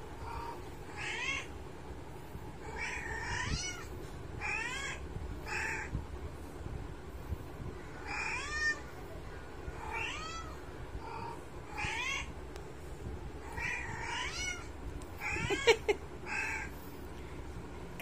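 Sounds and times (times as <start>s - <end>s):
cat meowing: 0.2s - 1.5s, 2.7s - 5.9s, 8.0s - 8.9s, 9.7s - 12.3s, 13.4s - 16.7s.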